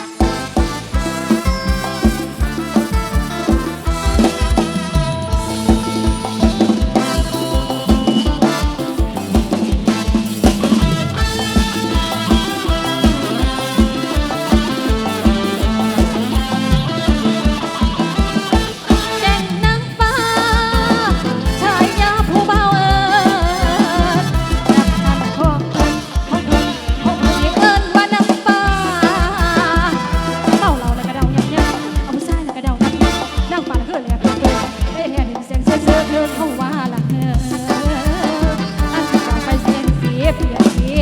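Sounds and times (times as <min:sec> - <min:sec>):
wavering lead melody: 0:00.0 - 0:27.8
loud folk dance music: 0:00.0 - 0:41.0.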